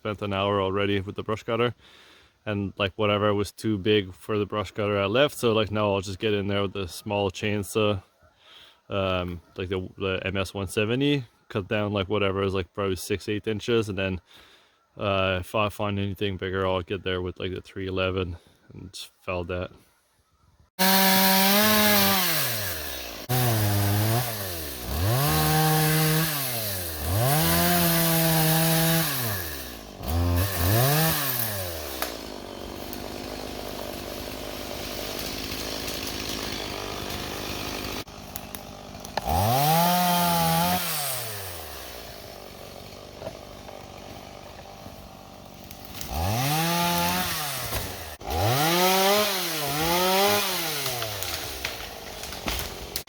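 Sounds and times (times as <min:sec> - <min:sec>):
chainsaw revving: 0:20.8 - 0:53.0.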